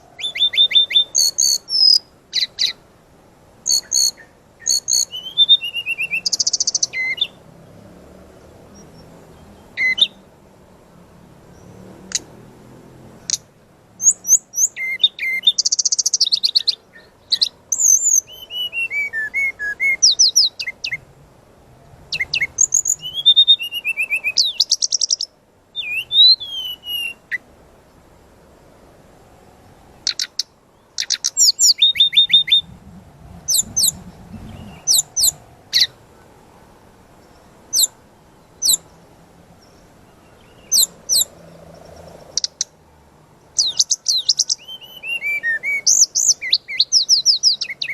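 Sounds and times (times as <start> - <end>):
bird singing high-pitched chirps: 0.0 - 2.8, 3.6 - 7.4, 8.7 - 10.2, 14.0 - 21.0, 22.1 - 27.4, 30.0 - 32.7, 33.5 - 36.0, 37.2 - 39.0, 39.6 - 42.8, 43.6 - 47.9.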